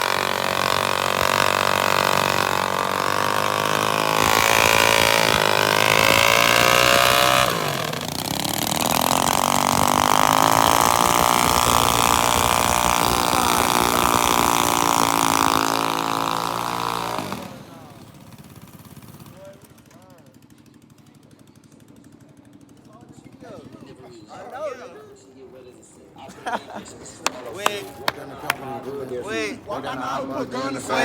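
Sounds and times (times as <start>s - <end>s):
minibike engine revving: 0.0s - 24.0s.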